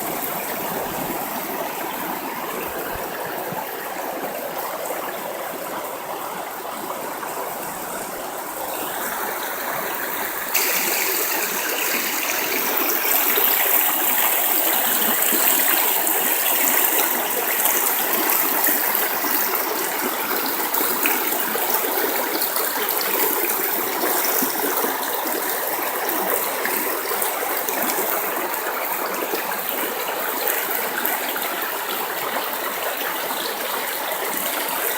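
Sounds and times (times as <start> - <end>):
river water flowing: 0.0 - 34.9.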